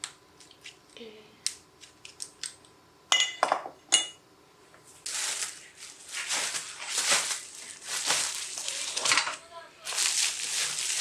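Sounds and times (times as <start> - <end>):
uneven rustling: 5.0 - 11.0
small hard objects clinking: 6.3 - 11.0.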